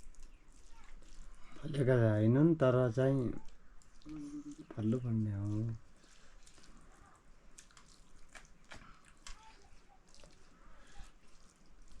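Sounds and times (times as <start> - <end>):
faint clicks and taps: 7.6 - 10.4.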